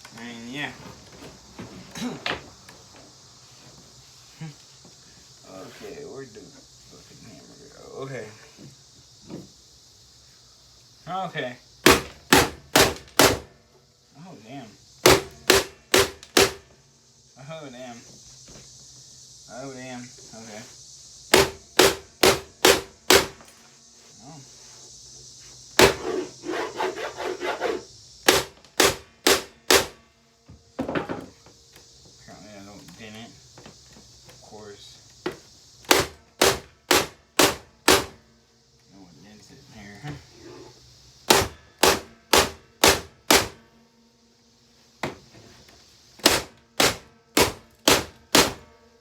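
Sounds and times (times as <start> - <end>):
hammer striking vacuum cleaner: 15.0 - 16.6, 21.3 - 23.5, 25.8 - 26.2, 27.5 - 30.0, 35.9 - 38.2, 41.3 - 43.6, 46.2 - 48.7.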